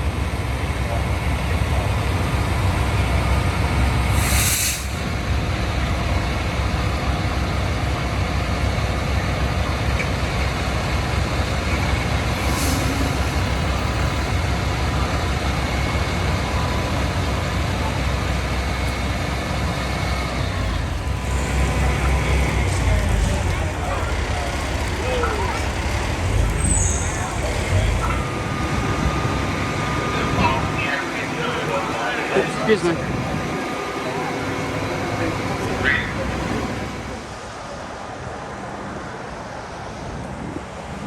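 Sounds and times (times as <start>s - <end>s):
diesel engine running: 0.0s - 37.6s
air brake hissing: 4.1s - 5.0s, 12.3s - 13.5s.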